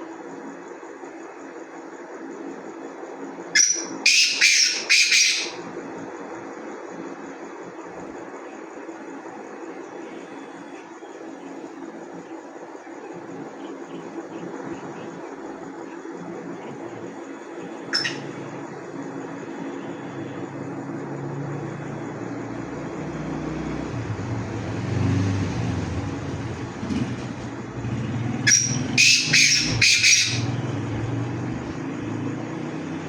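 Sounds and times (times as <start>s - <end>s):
francolin calling: 3.3s - 5.8s, 8.4s - 21.0s, 28.4s - 30.6s.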